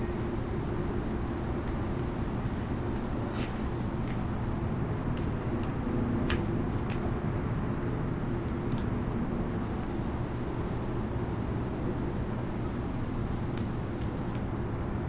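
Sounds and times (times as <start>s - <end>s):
songbird chirping: 0.0s - 0.6s, 1.7s - 2.5s, 4.9s - 5.7s, 6.5s - 9.3s.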